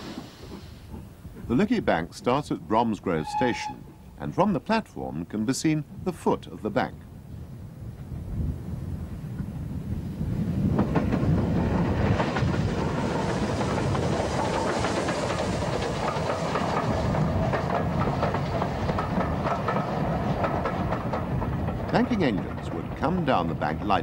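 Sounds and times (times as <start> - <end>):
steam train wheels clacking: 10.2 - 24.0.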